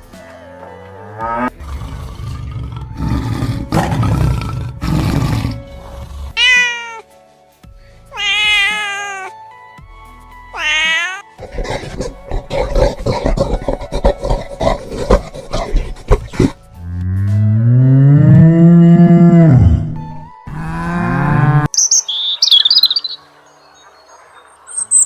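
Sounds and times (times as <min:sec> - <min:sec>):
background music: 0:00.0 - 0:24.3
rough animal calls: 0:11.4 - 0:17.3.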